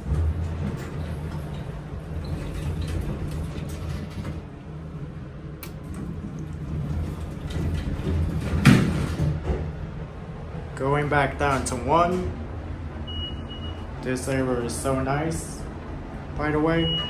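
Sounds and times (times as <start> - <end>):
elevator doors slamming shut: 0.0 - 4.5, 5.8 - 14.0
steady low hum: 0.0 - 17.0.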